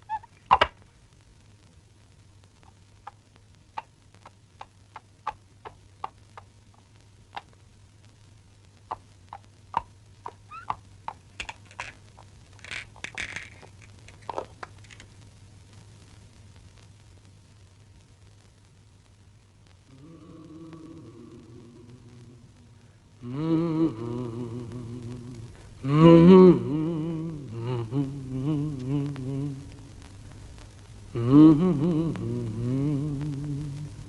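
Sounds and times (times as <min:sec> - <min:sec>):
steady low hum: 0:00.0 - 0:34.0
sharp taps and clicks: 0:08.9 - 0:15.1.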